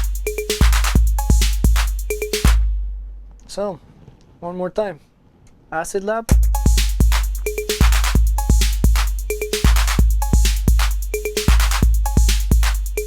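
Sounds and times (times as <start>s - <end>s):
pitched percussion hits: 0.0s - 3.0s, 6.3s - 13.0s
hi-hat strikes: 0.0s - 3.3s, 6.3s - 13.0s
low bass drum hits: 6.3s - 9.0s.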